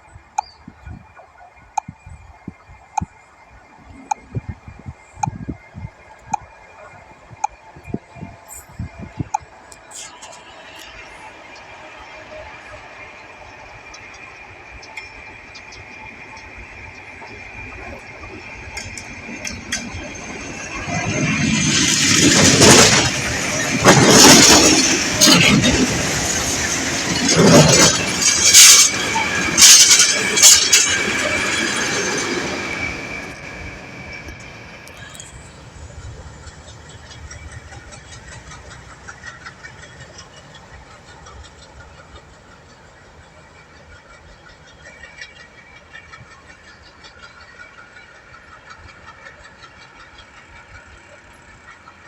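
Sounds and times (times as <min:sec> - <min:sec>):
freight train rolling past: 0:00.0 - 0:52.0
high-pitched wheel squeal: 0:17.2 - 0:40.1.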